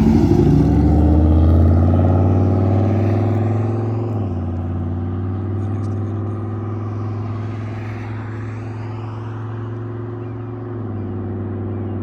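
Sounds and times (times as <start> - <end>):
car exhaust droning: 0.0 - 7.4.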